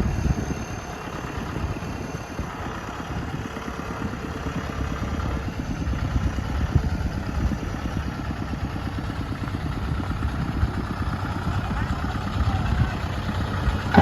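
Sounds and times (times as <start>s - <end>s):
tractor diesel engine chugging: 0.0s - 14.0s
loud engine knock: 10.0s - 14.0s.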